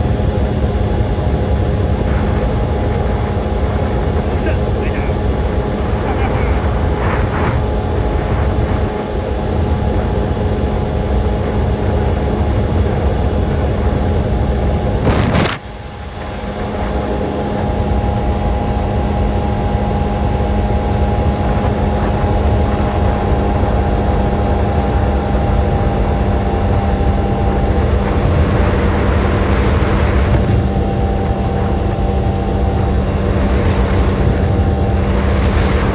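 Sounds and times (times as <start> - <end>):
motorcycle engine hum: 0.0 - 35.9
road and wind rumble: 0.0 - 35.9
sudden sharp rush: 15.0 - 15.8.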